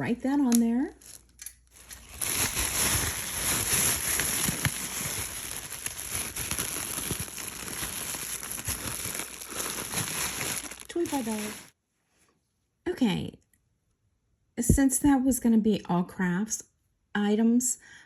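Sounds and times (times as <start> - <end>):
bag crinkling and rustling: 1.0 - 11.7.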